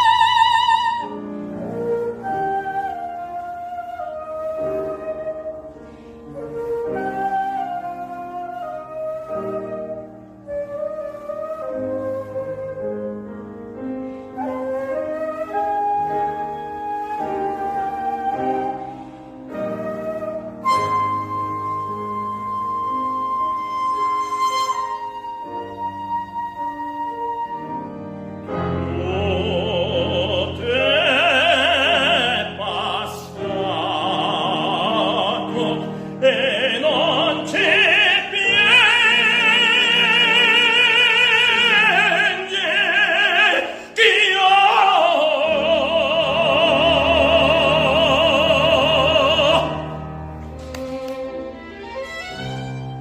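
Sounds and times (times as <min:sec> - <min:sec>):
operatic singing: 0:00.0 - 0:01.3, 0:28.7 - 0:52.8
piano: 0:00.0 - 0:53.0.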